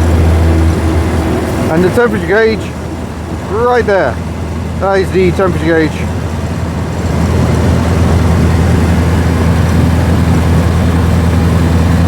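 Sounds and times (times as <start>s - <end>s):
car engine running: 0.0s - 12.0s
road noise: 0.0s - 12.0s.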